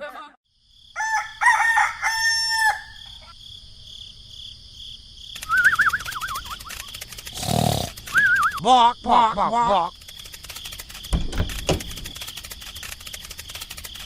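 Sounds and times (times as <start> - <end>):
rooster crowing: 1.0 - 3.3
wavering whistle-like tone: 5.4 - 6.9, 8.1 - 8.6.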